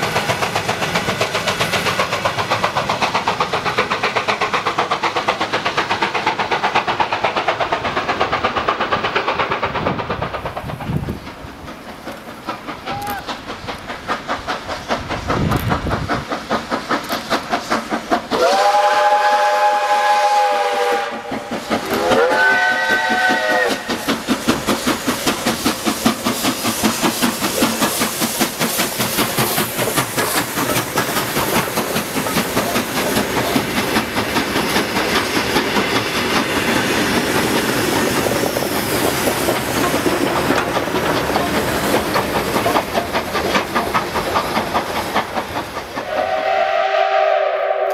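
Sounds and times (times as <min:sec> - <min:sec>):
steam locomotive chugging: 0:00.0 - 0:47.9
steam whistle blasts: 0:18.4 - 0:23.9, 0:46.0 - 0:47.9.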